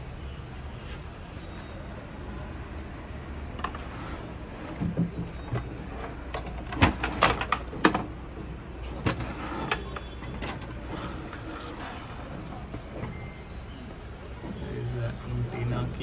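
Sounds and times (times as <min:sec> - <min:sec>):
plastic console clicks and knocks: 0:06.3 - 0:08.2.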